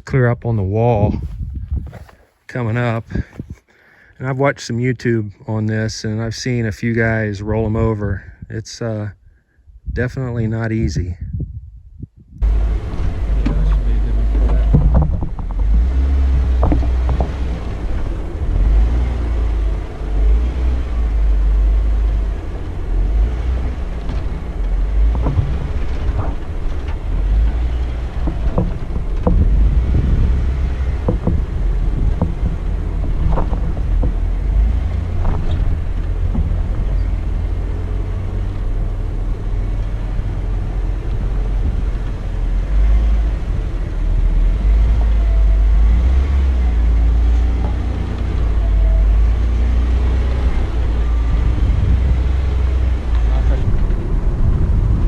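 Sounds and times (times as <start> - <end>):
low engine rumble: 0.0 - 55.0
short knocks and clicks: 13.4 - 17.7, 24.9 - 37.2.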